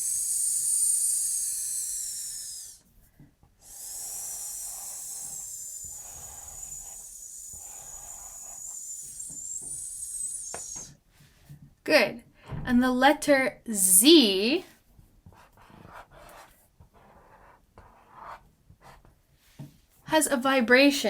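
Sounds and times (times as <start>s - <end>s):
person hissing an s sound: 0.0s - 2.8s, 3.6s - 11.0s.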